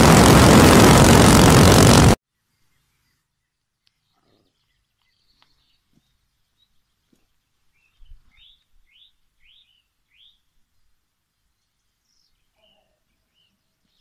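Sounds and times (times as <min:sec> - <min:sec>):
bird chirping: 0:02.3 - 0:10.5.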